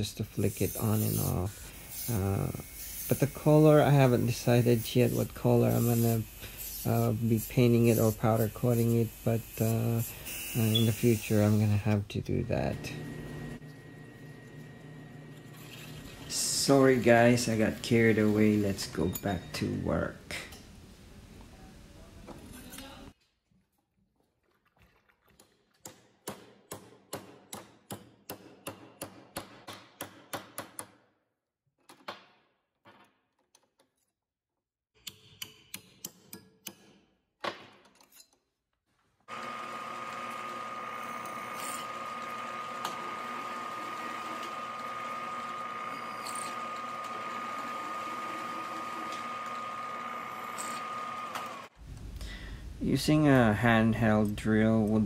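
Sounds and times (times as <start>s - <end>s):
milling machine whine: 12.4s - 19.8s, 39.3s - 51.7s.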